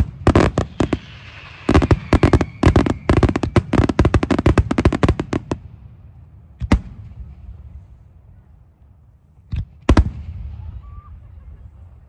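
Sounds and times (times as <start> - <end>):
fireworks bangs: 0.0 - 5.8.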